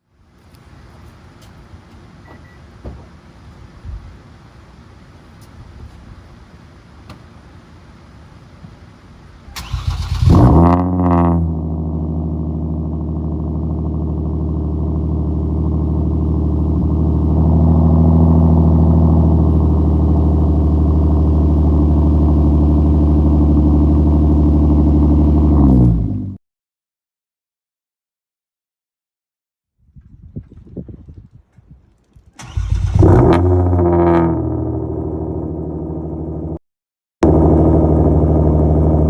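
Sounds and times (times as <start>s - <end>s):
car engine revving and idling: 9.6s - 26.4s, 32.4s - 36.6s, 37.2s - 39.0s.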